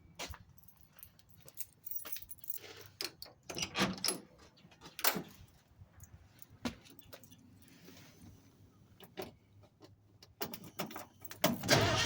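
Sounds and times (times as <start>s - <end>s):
keys jangling: 0.6s - 3.3s.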